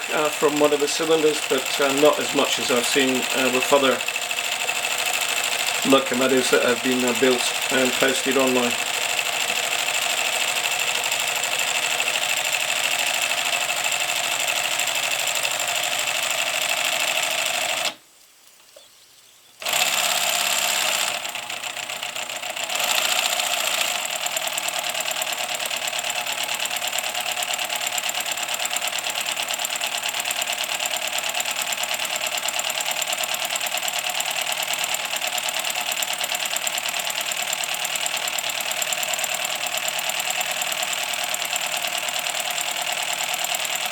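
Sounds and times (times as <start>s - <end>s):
locomotive motion clatter: 0.0s - 4.2s, 5.5s - 8.8s.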